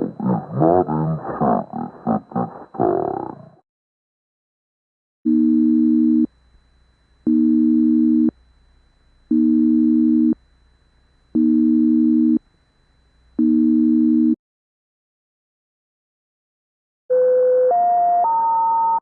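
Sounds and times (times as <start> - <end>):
low electronic buzzer tone: 0.0 - 3.0, 5.3 - 14.4.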